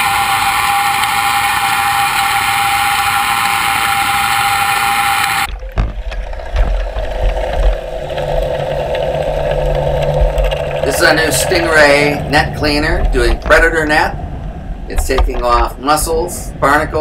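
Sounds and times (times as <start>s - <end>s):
low hum: 0.0s - 17.0s
underwater machine whine: 0.0s - 17.0s
low rumbling: 5.3s - 17.0s
irregular thumps: 5.5s - 15.8s.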